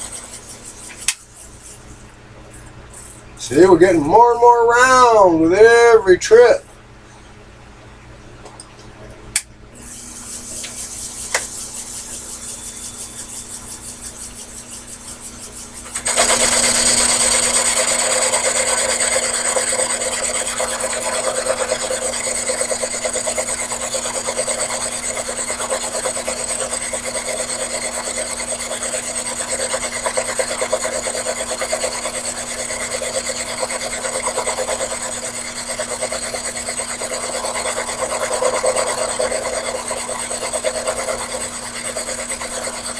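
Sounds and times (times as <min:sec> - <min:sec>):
motor hum: 0:00.0 - 0:42.9
lathe tool scraping workpiece: 0:09.8 - 0:42.9.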